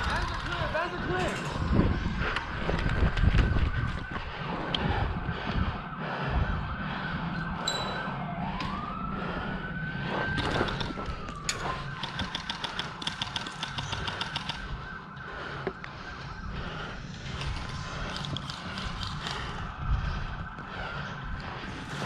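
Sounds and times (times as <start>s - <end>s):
siren wailing: 0.0s - 22.0s.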